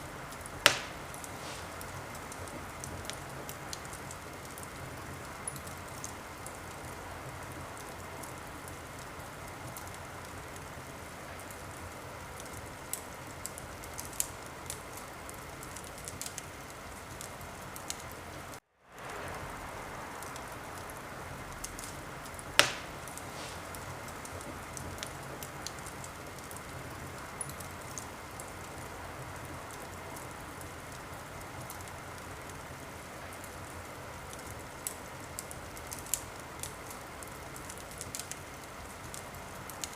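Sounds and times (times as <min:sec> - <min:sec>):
soft hiss of fire: 0:00.0 - 0:39.9
wood fire crackling: 0:00.0 - 0:39.9
wood pops: 0:00.6 - 0:01.9, 0:22.6 - 0:23.8.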